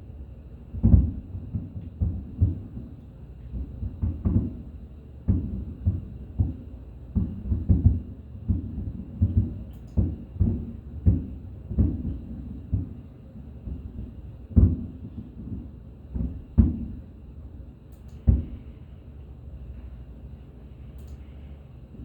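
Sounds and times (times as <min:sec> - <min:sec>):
fireworks booming: 0:00.7 - 0:17.2, 0:18.2 - 0:18.8.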